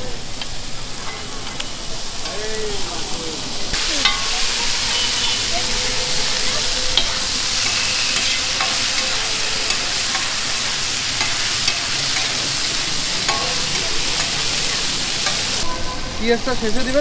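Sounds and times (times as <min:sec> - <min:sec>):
chicken frying in hot oil: 0:00.0 - 0:15.7
metal spatula scraping pan: 0:04.0 - 0:15.7.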